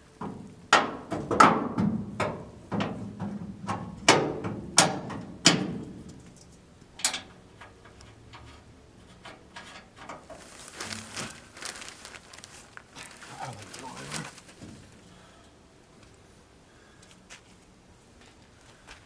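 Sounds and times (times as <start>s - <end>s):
parts clattering: 0.0s - 15.1s
sharp knocks: 0.2s - 6.3s.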